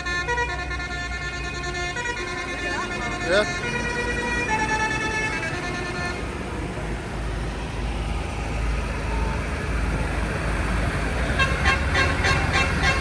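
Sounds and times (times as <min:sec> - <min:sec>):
road noise: 0:00.0 - 0:13.0
tractor engines passing: 0:00.0 - 0:13.0.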